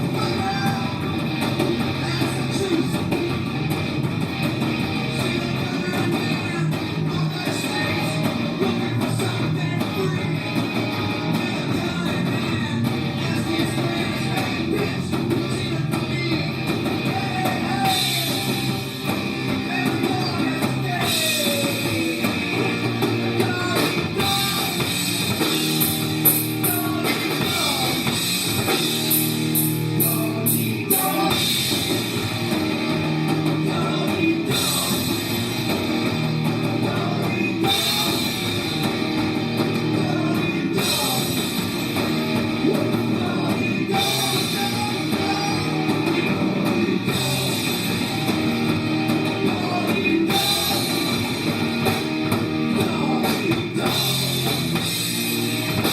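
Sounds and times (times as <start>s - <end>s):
drum kit: 0.0s - 55.9s
electric guitar: 0.0s - 55.9s
rock band playing: 0.0s - 55.9s.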